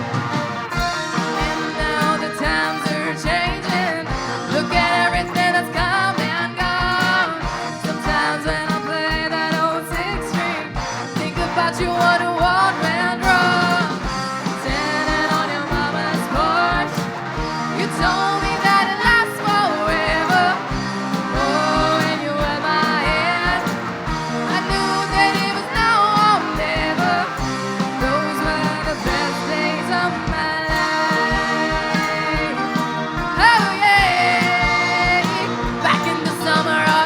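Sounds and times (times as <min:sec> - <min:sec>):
lead electric guitar melody: 0:00.0 - 0:37.0
rock band playing: 0:00.0 - 0:37.0.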